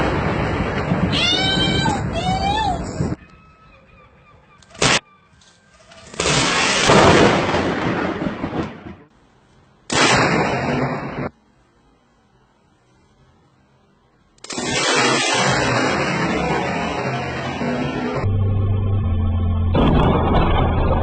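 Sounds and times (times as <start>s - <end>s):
loud thunder clap: 0.0s - 3.2s, 6.2s - 9.1s
thunder crack: 0.0s - 3.2s, 6.1s - 9.1s, 9.9s - 11.3s, 14.6s - 18.3s, 19.7s - 21.0s.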